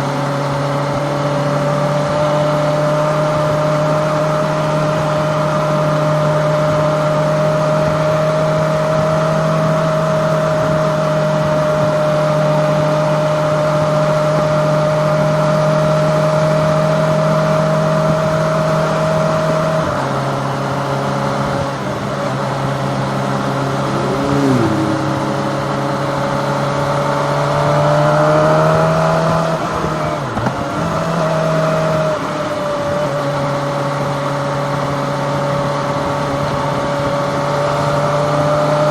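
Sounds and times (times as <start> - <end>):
motorcycle engine cruising: 0.0 - 38.9
rising and falling tones: 22.8 - 28.6.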